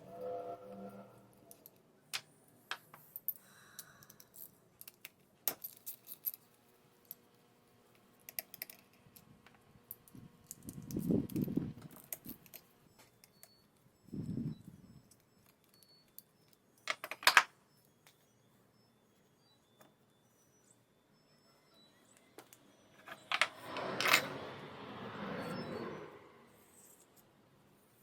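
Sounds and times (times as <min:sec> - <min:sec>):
small parts and tools clinking: 0:01.5 - 0:07.3, 0:08.2 - 0:18.2, 0:22.1 - 0:24.4.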